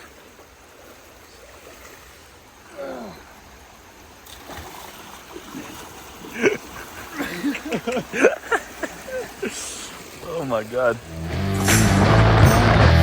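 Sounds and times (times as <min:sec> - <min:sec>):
flowing stream water: 0:00.0 - 0:13.0.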